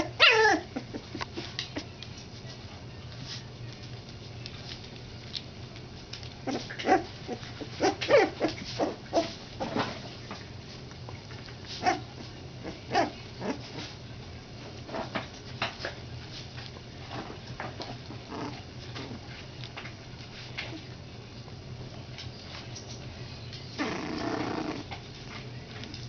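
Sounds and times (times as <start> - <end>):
puppies crying: 0.0 - 1.2, 6.5 - 9.4.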